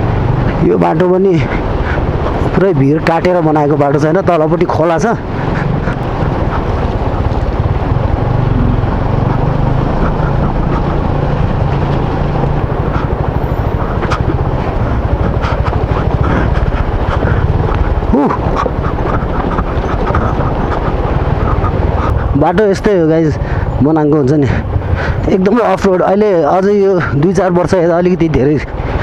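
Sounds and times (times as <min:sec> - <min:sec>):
motorcycle engine running: 0:00.0 - 0:29.0
wind buffeting microphone: 0:00.0 - 0:29.0
up-and-down glide: 0:04.1 - 0:23.9.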